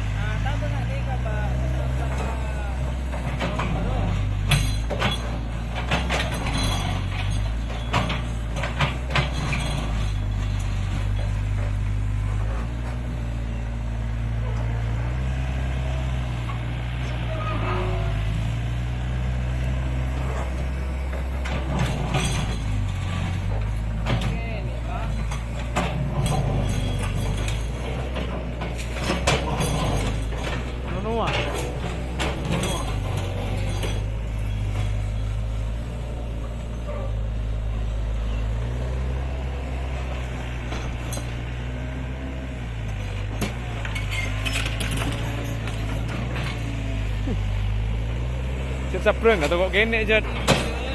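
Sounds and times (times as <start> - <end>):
heavy machinery diesel engine: 0.0 - 50.9
clattering knocks: 25.2 - 35.5.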